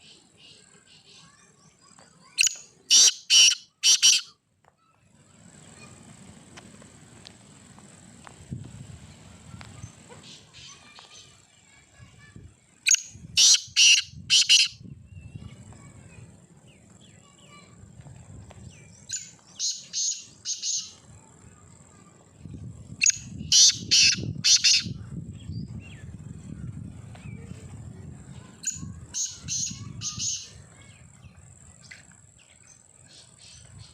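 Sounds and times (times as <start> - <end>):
francolin harsh calling: 2.2 - 4.4, 12.9 - 14.8, 19.1 - 21.0, 23.0 - 25.0, 28.6 - 30.6.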